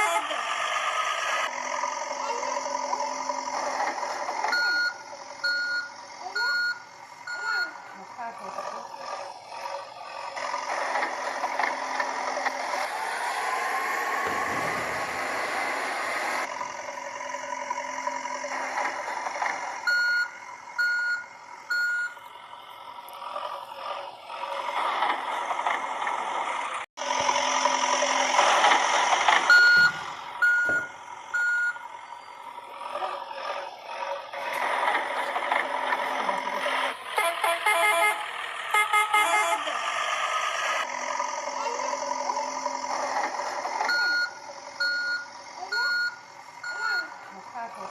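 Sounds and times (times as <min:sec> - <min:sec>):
toy truck engine noise: 0:00.0 - 0:47.9
reversing beeps: 0:04.5 - 0:07.8, 0:19.8 - 0:22.2, 0:29.5 - 0:32.4, 0:43.9 - 0:47.2.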